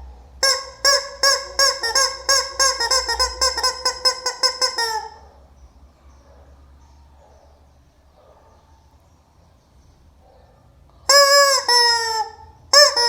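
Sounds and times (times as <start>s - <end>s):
chicken squawking: 0.4s - 5.4s, 11.1s - 13.0s.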